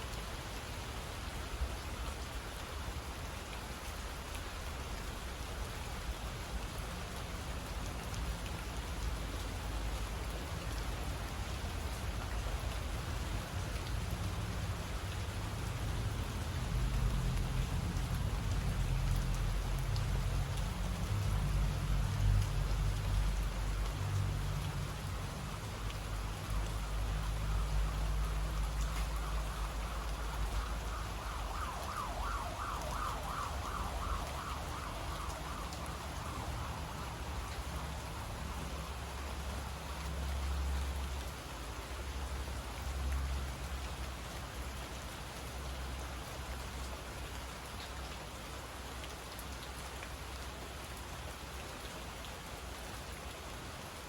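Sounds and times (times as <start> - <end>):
rain falling: 0.0 - 54.0
distant wavering siren: 15.6 - 40.7.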